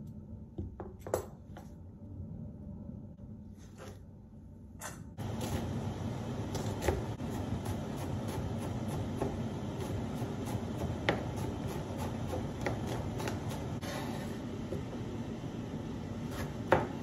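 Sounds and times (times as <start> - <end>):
knife chopping on cutting board: 6.5 - 14.0, 16.3 - 17.0.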